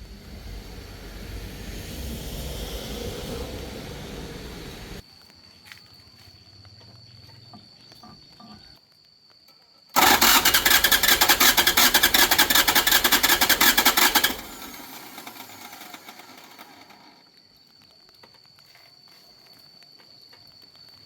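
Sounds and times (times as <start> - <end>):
loud fast mechanical rattle: 10.0 - 17.2.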